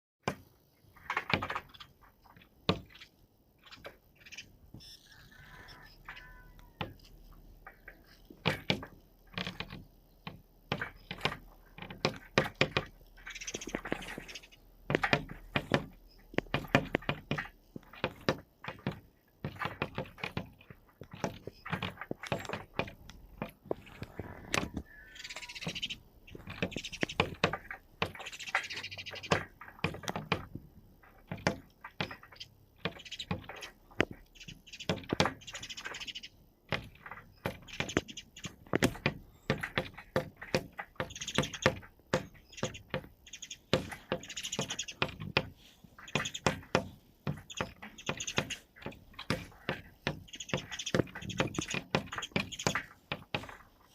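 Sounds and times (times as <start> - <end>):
birds tapping on window glass: 0.2 - 53.9.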